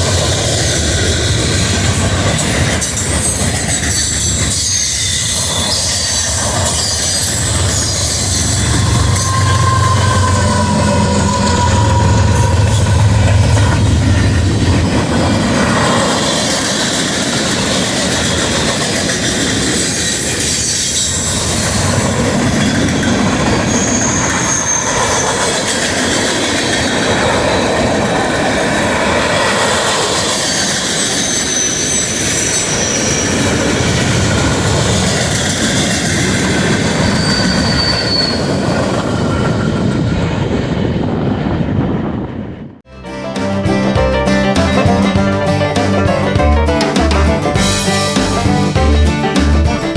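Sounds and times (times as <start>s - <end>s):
train wheels rumbling on track: 0.0s - 49.9s
high-pitched wheel squeals: 2.3s - 16.9s, 19.7s - 26.3s, 29.2s - 36.0s, 36.7s - 38.9s.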